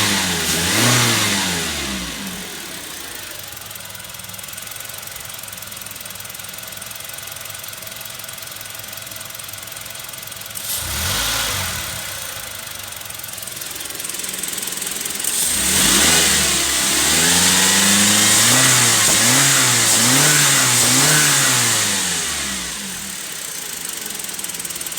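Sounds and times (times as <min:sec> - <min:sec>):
engine idling and revving: 0:00.0 - 0:24.9.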